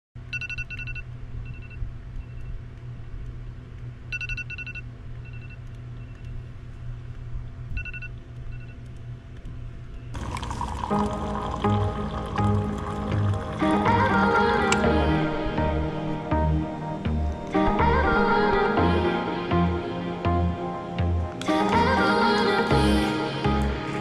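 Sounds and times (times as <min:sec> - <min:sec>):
steady low hum: 0:00.2 - 0:24.0
electronic alarm beeping: 0:00.3 - 0:02.5, 0:04.1 - 0:06.5, 0:07.8 - 0:08.8.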